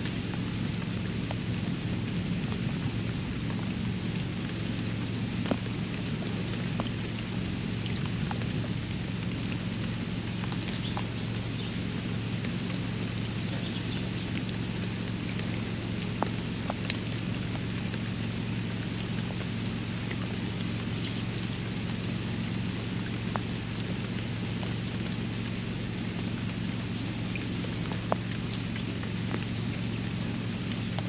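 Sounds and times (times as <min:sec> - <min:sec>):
constant low hum: 0:00.0 - 0:31.0
rain falling on a pond: 0:00.0 - 0:31.0.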